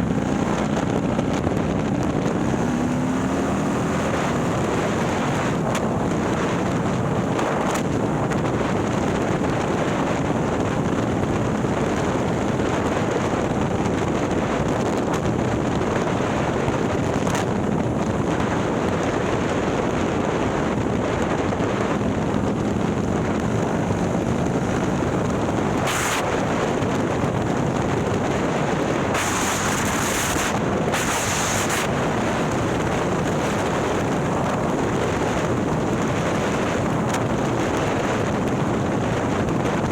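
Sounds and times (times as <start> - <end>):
motorcycle engine on the road: 0.0 - 39.9
wind noise on microphone: 0.0 - 39.9.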